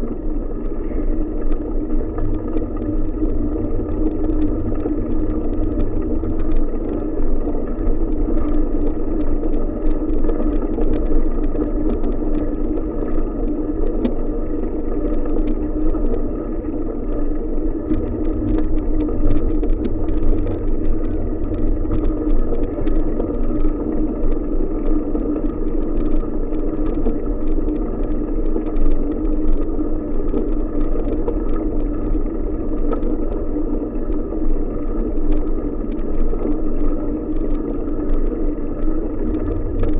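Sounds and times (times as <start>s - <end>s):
wind buffeting microphone: 1.0s - 10.2s, 15.5s - 27.7s, 36.3s - 39.9s.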